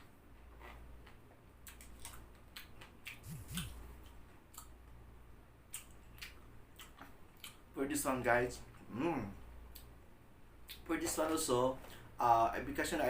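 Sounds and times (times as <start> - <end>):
low hum: 3.1 - 4.1.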